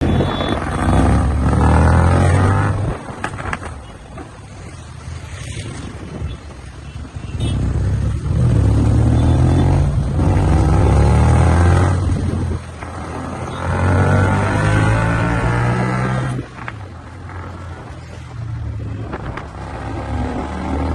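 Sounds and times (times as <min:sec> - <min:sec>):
motorcycle engine revving: 0:00.0 - 0:03.0, 0:07.5 - 0:16.5.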